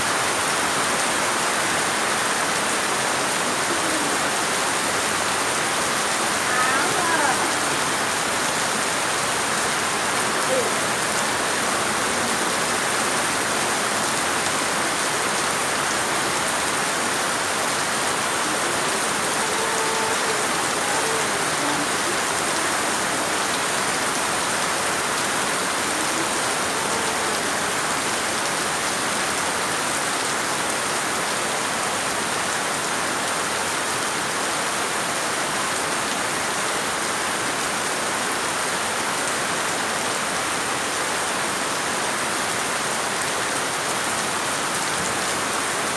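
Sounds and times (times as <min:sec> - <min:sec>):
rain falling steadily: 0:00.0 - 0:45.9.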